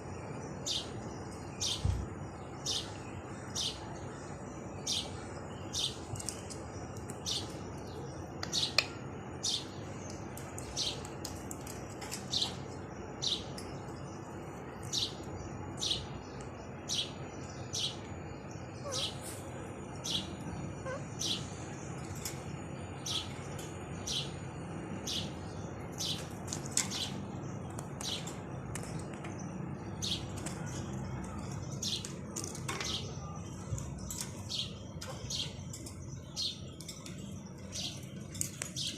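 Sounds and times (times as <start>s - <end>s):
parakeets calling shrilly: 18.7s - 21.6s.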